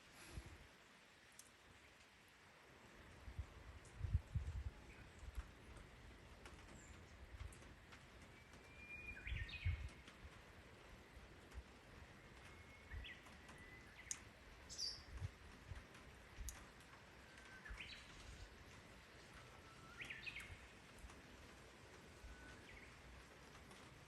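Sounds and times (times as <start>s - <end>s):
faint bird whistling song: 8.3s - 10.0s, 12.0s - 15.2s, 17.2s - 18.6s, 19.3s - 20.8s, 22.1s - 23.1s.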